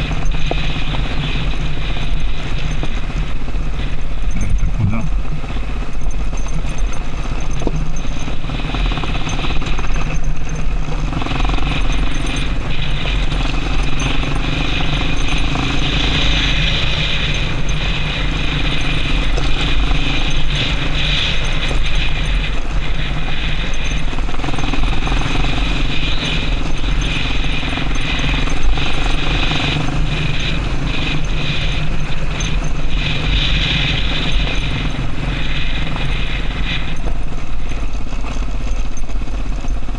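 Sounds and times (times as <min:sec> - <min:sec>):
motorcycle engine running: 0:00.0 - 0:39.9
steady rushing noise: 0:00.0 - 0:39.9.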